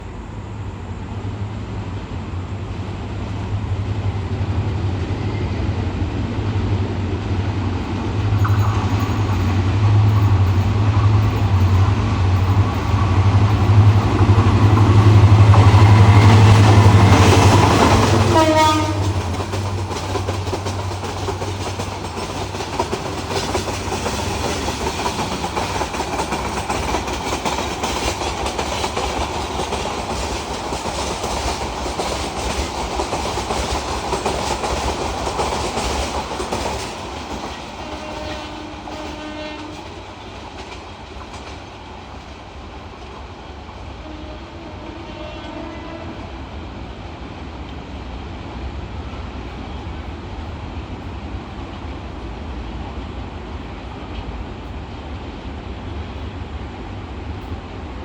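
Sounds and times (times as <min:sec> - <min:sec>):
diesel locomotive engine hum: 0:00.0 - 0:58.0
carriages clattering over rails: 0:07.1 - 0:43.3
train horn: 0:15.8 - 0:19.4, 0:37.8 - 0:40.0, 0:44.0 - 0:46.4.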